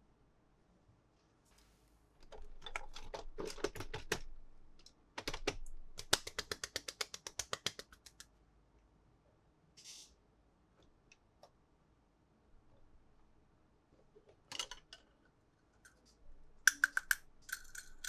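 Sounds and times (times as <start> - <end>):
soft rustle: 1.1 - 2.1
toy pieces clicking: 16.7 - 18.0.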